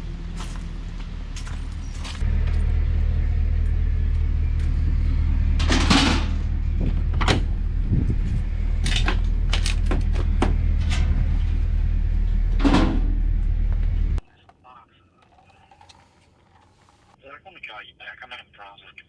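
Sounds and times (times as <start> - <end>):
vehicle rumble from inside cab: 0.0 - 14.2.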